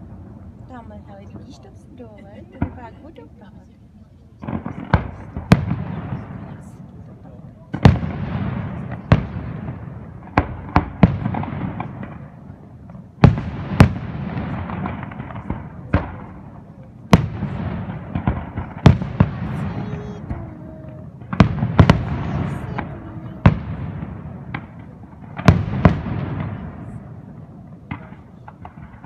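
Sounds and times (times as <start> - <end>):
echoing rumble and crackle: 4.4 - 29.0.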